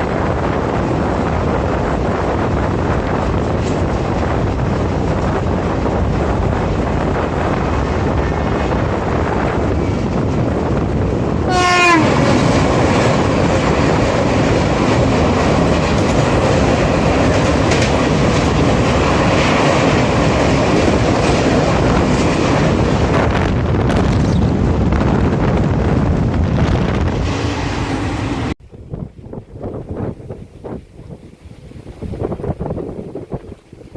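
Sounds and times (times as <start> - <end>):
train horn blast: 11.5 - 12.5
train wheels clattering over rails: 11.8 - 24.7.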